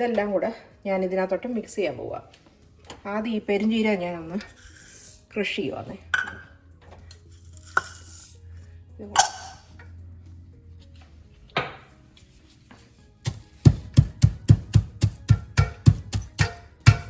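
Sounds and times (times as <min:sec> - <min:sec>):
kitchen utensils knocking: 0:06.2 - 0:06.5, 0:13.3 - 0:17.0
music with percussive beat: 0:13.2 - 0:17.0.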